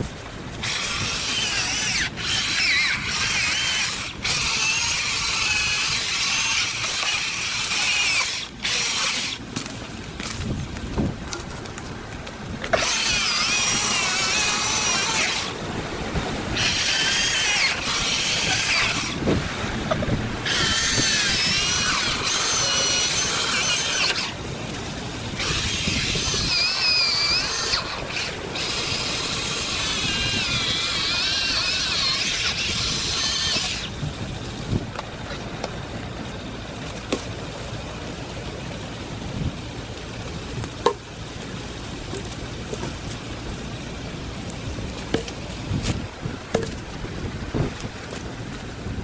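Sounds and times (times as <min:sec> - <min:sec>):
chainsaw cutting timber: 0:00.5 - 0:10.4, 0:12.6 - 0:19.4, 0:20.4 - 0:34.1.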